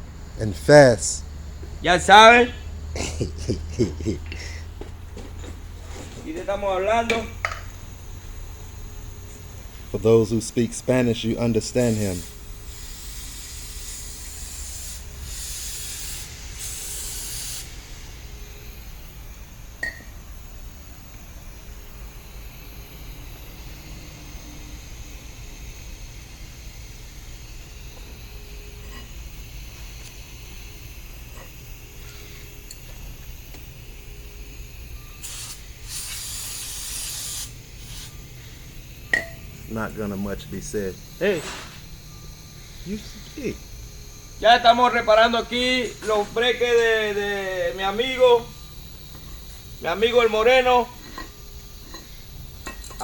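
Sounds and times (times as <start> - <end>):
spray hissing: 10.0 - 18.1, 35.2 - 38.4.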